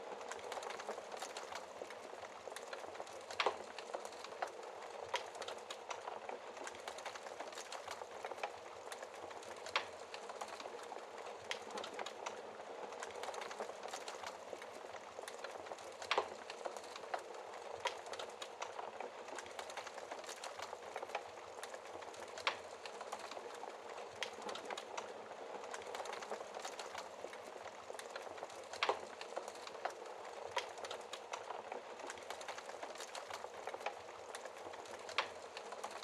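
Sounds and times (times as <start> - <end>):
steady rain hiss: 0.0 - 36.0
wood fire crackling: 0.0 - 36.0.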